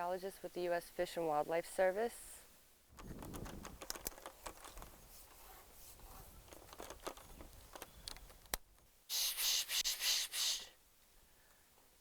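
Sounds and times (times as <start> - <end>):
faint rustling: 2.9 - 8.6
small clicks: 3.0 - 4.9, 6.5 - 8.6.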